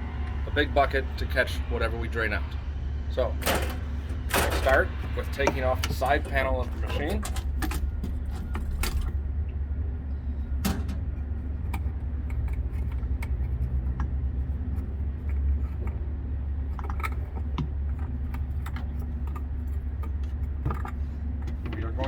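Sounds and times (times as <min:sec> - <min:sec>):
steady low hum: 0:00.0 - 0:22.0
metal panel clicks and clinks: 0:03.4 - 0:09.2, 0:10.6 - 0:11.1.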